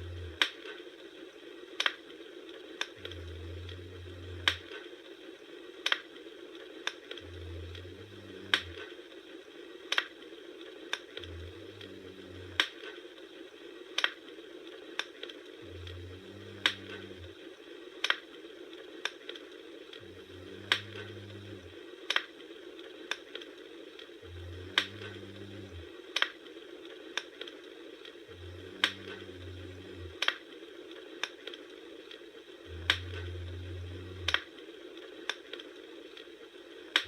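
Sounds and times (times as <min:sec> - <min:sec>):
low hum: 0:00.0 - 0:00.5, 0:03.0 - 0:04.9, 0:07.1 - 0:09.5, 0:11.1 - 0:13.0, 0:15.5 - 0:17.6, 0:19.9 - 0:21.8, 0:24.2 - 0:26.0, 0:28.2 - 0:30.2, 0:32.6 - 0:34.6
wood fire crackling: 0:00.0 - 0:37.0.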